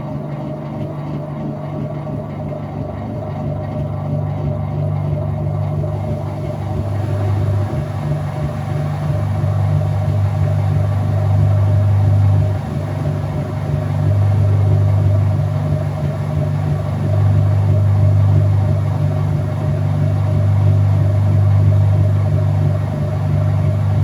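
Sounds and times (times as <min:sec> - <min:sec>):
washing machine motor hum: 0:00.0 - 0:24.0.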